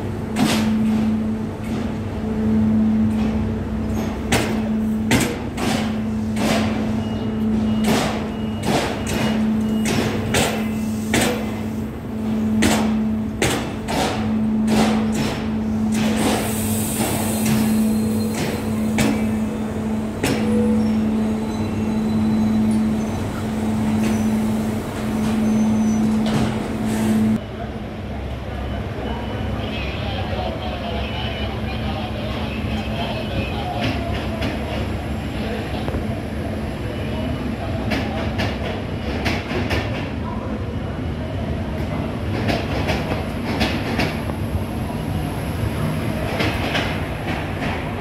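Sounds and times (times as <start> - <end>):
train wheels clacking over joints: 12.6 - 19.3.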